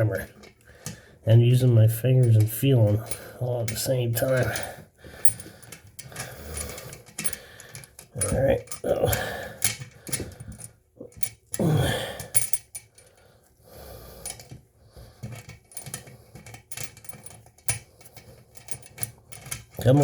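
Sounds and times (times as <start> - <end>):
small metal clicks and clinks: 2.2 - 13.2, 15.2 - 20.0
person grunting: 11.6 - 12.3.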